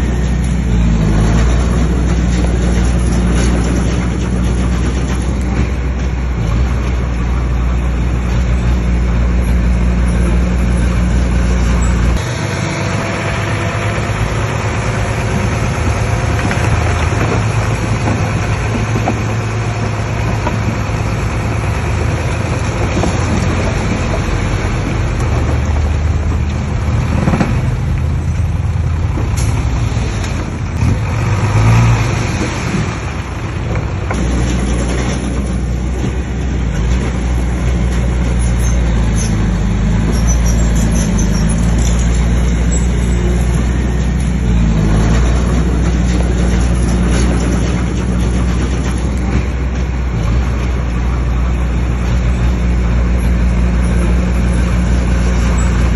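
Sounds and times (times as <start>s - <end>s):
bulldozer diesel engine under load: 0.0s - 55.9s.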